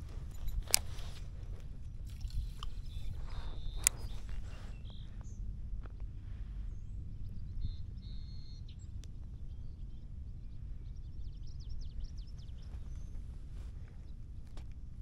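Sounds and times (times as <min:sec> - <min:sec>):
sharp clicks: 0:00.0 - 0:01.3, 0:02.1 - 0:04.6
birds calling: 0:02.1 - 0:05.4.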